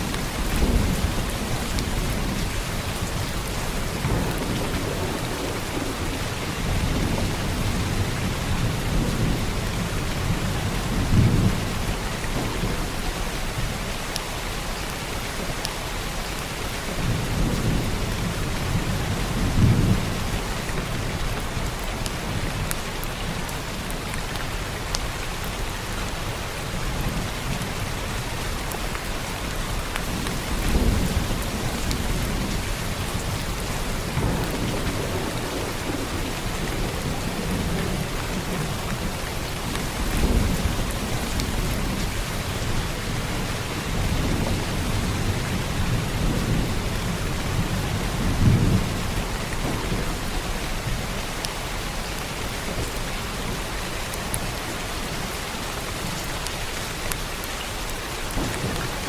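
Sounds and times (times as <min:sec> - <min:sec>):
low thunder rumbling: 0:00.0 - 0:13.9, 0:30.0 - 0:52.0, 0:58.2 - 0:59.0
heavy rain falling: 0:00.0 - 0:59.0.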